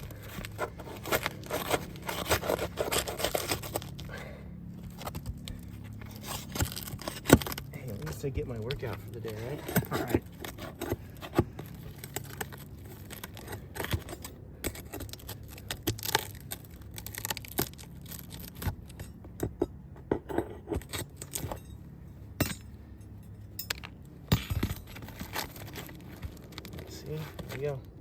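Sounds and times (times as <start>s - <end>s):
roof shingles being pried loose: 0.0s - 4.1s, 4.7s - 21.7s, 23.7s - 27.9s
sharp clicks snaps and scrapes: 4.9s - 21.6s, 23.7s - 28.0s.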